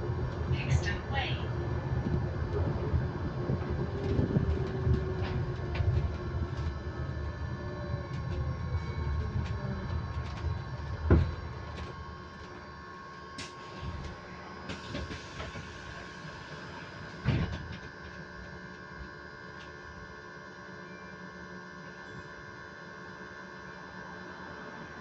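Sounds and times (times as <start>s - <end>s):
low road rumble: 0.0s - 12.3s
drivetrain whine: 0.0s - 25.0s.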